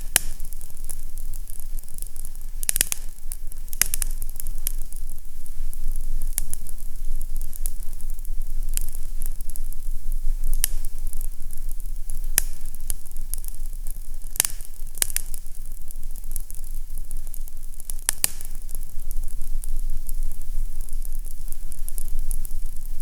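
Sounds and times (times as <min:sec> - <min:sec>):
fire crackling and popping: 0:00.0 - 0:23.0
low fire rumble: 0:00.0 - 0:23.0.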